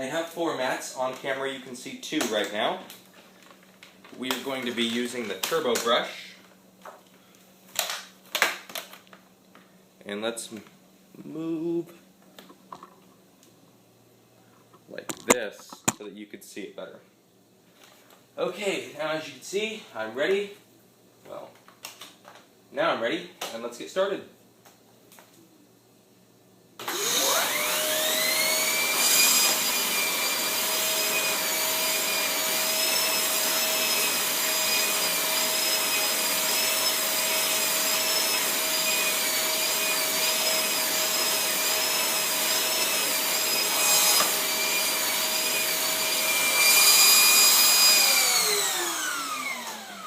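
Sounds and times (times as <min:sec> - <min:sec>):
vacuum cleaner motor whine: 0:26.8 - 0:50.0.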